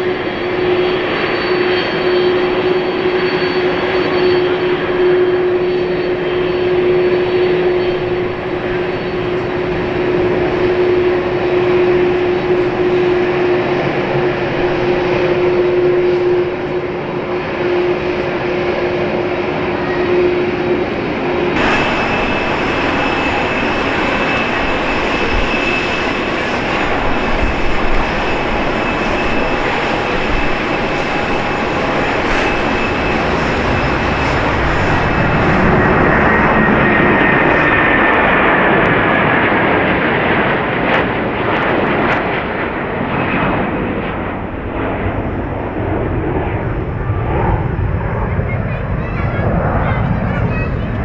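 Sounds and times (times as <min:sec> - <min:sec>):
whine gliding down: 0:00.0 - 0:39.5
high engine whine: 0:00.0 - 0:40.0
jet engines rushing: 0:00.0 - 0:51.0.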